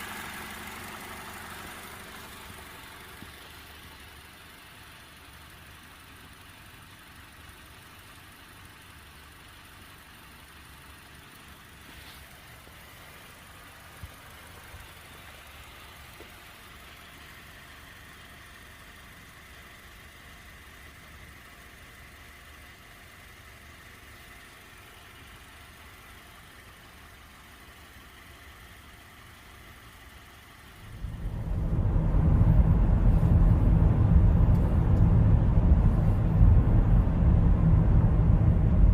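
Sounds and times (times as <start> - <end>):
minivan engine idling: 0.0 - 38.9
loud low rumble: 30.8 - 38.9.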